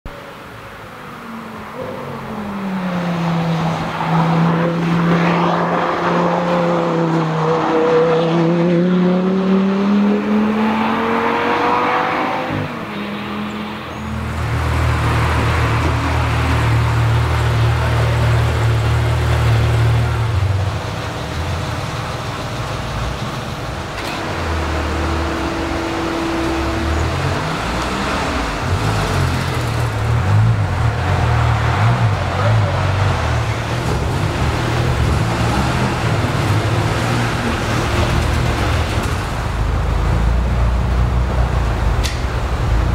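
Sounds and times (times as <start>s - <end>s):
car engine idling and revving: 0.1s - 42.9s
car passing at speed: 1.8s - 17.0s.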